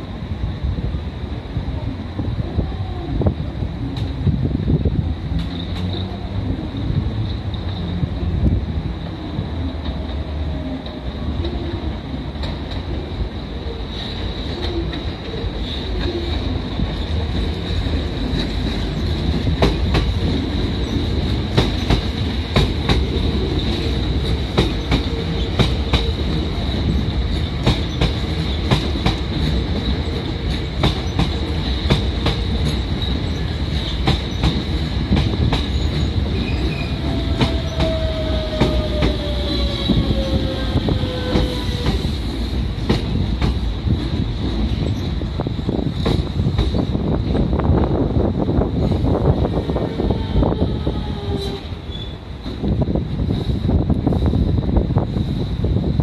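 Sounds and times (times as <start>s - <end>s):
train rumble: 0.0s - 56.0s
train wheels clicking over rail joints: 5.3s - 8.2s, 14.0s - 47.6s.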